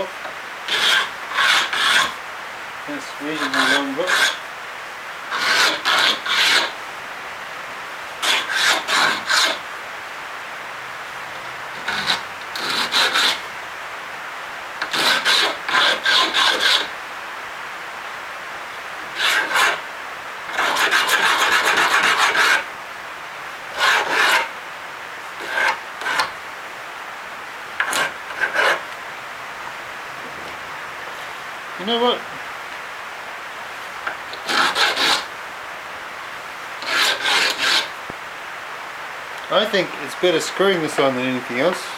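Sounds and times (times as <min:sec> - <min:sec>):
sandpaper rubbing on hardwood: 0:00.7 - 0:02.2, 0:03.2 - 0:04.4, 0:05.3 - 0:06.7, 0:08.2 - 0:09.6, 0:11.8 - 0:13.4, 0:14.8 - 0:16.9, 0:19.2 - 0:19.8, 0:20.5 - 0:22.7, 0:23.7 - 0:24.5, 0:25.4 - 0:26.3, 0:27.8 - 0:28.8, 0:34.4 - 0:35.3, 0:36.8 - 0:37.9.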